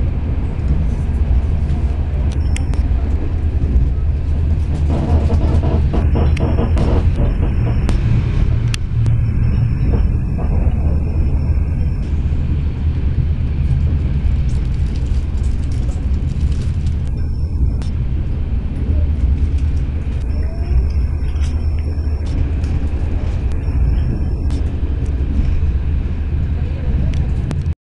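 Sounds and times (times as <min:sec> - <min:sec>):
train wheels rumbling on rails: 0:00.0 - 0:27.7.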